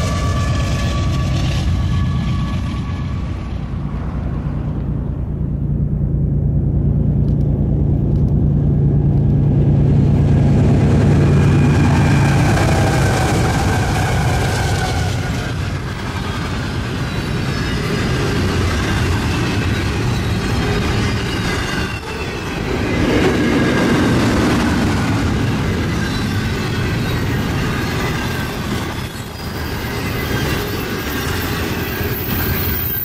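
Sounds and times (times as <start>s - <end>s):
diesel locomotive drone: 0.0s - 33.0s
train wheels clattering on rails: 10.3s - 33.0s
faint wheel squeal: 25.7s - 33.0s.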